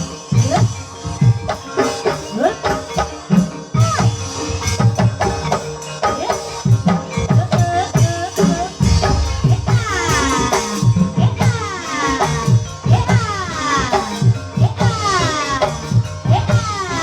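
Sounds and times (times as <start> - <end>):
drum strokes: 8.4 - 11.2
held pitched tones: 8.5 - 10.9.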